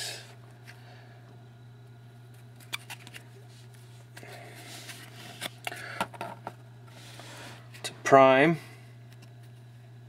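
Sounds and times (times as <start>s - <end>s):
cards snapping: 2.6s - 3.3s
cards sliding and rustling: 2.6s - 7.6s.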